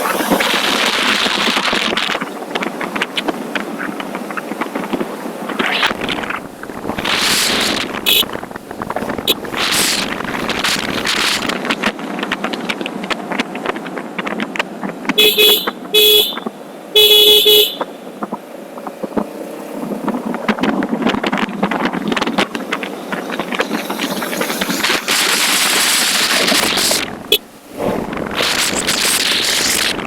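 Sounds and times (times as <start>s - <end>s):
wind and road noise: 0.0s - 30.0s
vehicle horn honking: 8.0s - 8.4s, 15.2s - 17.9s.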